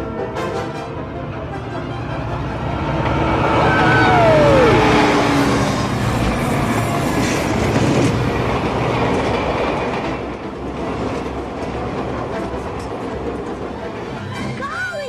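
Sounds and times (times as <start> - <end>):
train wheels clattering over rails: 5.6 - 14.6.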